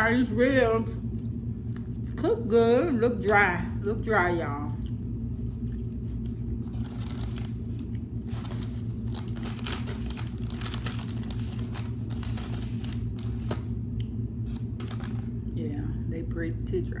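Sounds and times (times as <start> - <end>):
steady low hum: 0.0 - 17.0
wrapping crinkling and crackling: 4.8 - 15.5.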